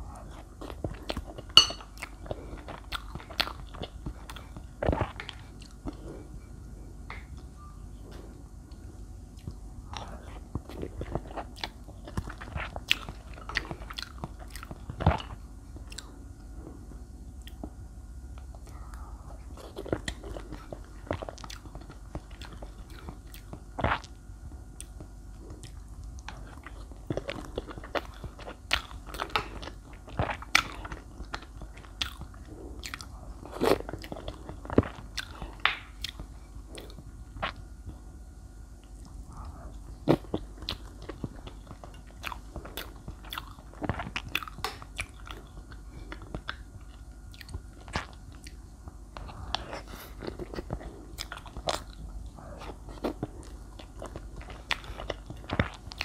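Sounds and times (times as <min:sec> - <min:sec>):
wet chewing and mouth smacks: 0:38.8 - 0:56.0.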